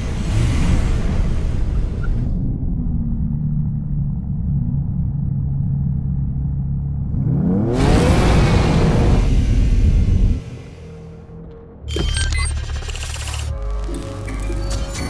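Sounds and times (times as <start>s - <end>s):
car engine accelerating hard: 7.0s - 11.1s.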